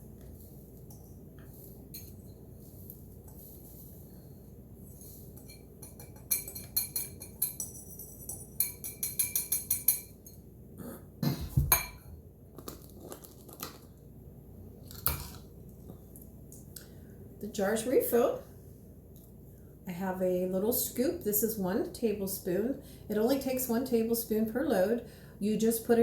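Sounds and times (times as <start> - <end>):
utensil clinking glass jar: 5.4 - 10.4.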